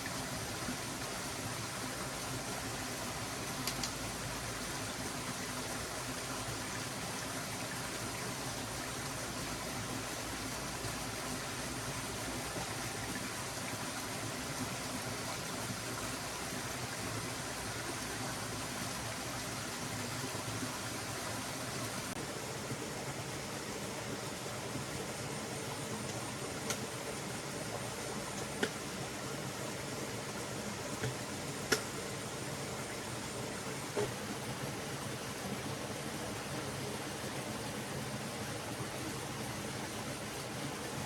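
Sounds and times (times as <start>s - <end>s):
stream water flowing: 0.0s - 41.0s
faint click: 3.6s - 4.0s.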